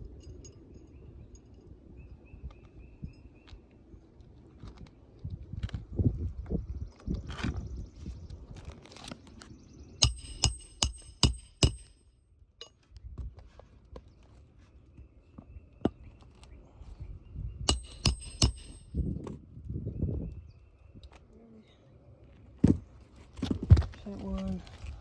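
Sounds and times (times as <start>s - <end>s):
hammer striking metal: 10.0s - 12.0s, 17.7s - 18.9s.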